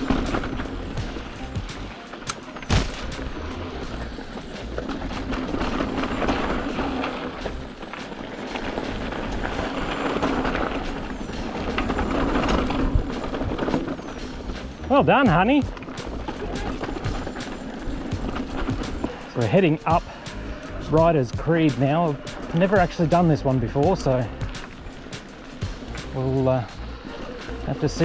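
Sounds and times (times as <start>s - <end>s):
bike tyre and wind rumble: 0.0s - 28.0s
sharp knock: 2.7s - 3.4s.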